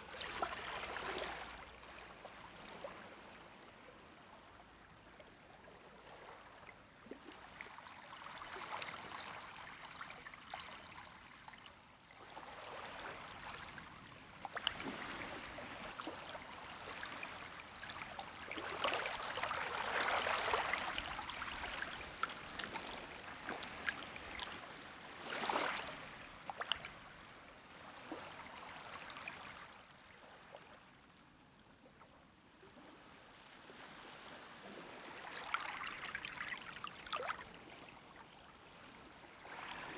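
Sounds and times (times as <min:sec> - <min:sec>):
gentle waves washing onto beach: 0:07.2 - 0:29.6, 0:32.7 - 0:39.9.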